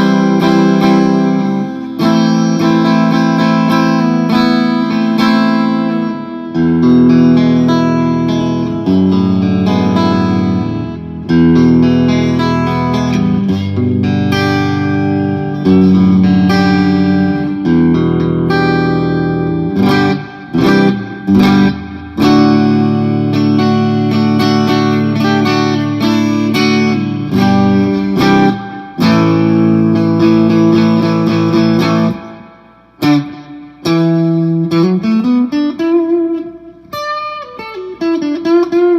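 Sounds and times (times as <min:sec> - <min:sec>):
clean electric guitar chords: 0:00.0 - 0:38.9.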